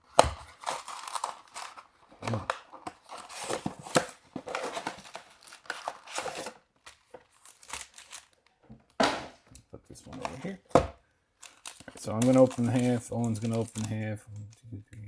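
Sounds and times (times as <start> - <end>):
plastic packaging crinkling and tearing: 0.0 - 8.6, 11.4 - 14.1.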